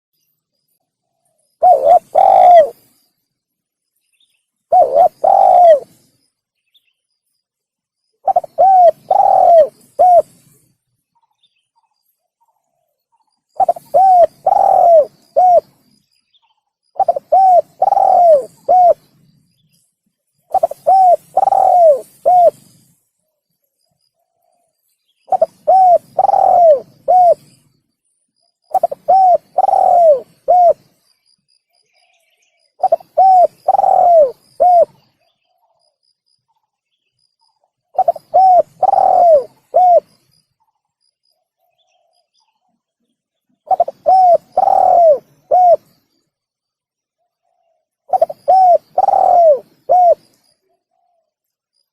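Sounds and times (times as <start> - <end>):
dove cooing: 1.6 - 2.9, 4.7 - 6.0, 8.2 - 10.6, 13.6 - 15.8, 17.0 - 19.1, 20.5 - 22.9, 25.3 - 27.5, 28.7 - 30.9, 32.8 - 35.1, 38.0 - 40.2, 43.7 - 45.9, 48.1 - 51.2.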